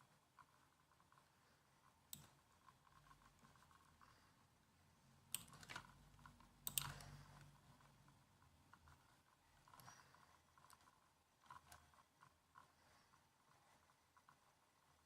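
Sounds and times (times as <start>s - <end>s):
laptop keyboard typing: 5.2s - 13.0s.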